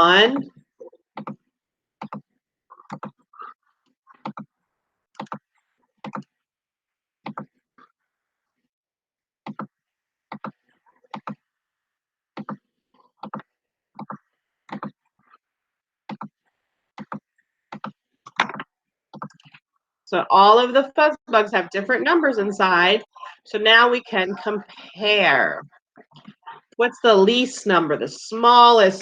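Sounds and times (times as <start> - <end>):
computer mouse clicks: 2.9 - 3.2, 5.2 - 5.4, 17.0 - 19.6.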